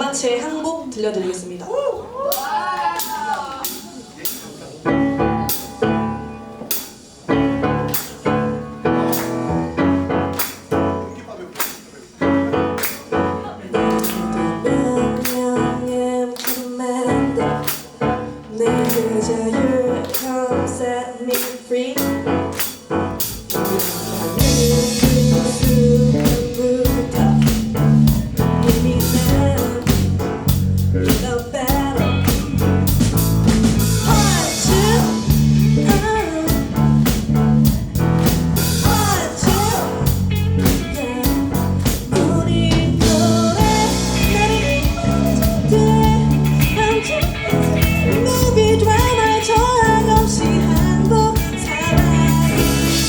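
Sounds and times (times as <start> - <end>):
rock band playing: 3.6 - 15.8, 21.4 - 53.0
person singing: 12.9 - 22.7, 23.4 - 33.0, 33.8 - 37.8, 38.8 - 53.0.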